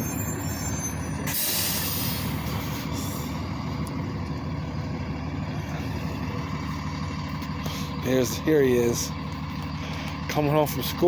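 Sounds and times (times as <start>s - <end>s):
bus engine rumbling: 0.0s - 11.0s
air brake hiss: 0.6s - 3.4s.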